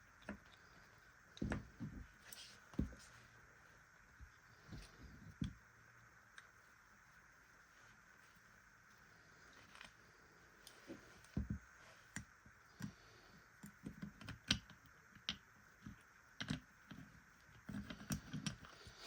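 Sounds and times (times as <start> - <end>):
small parts and tools clicking: 12.1 - 19.0.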